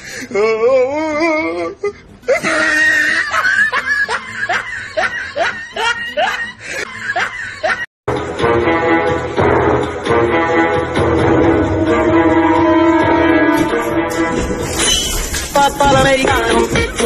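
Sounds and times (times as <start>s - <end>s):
music: 0.0s - 17.0s
person laughing: 1.8s - 7.9s.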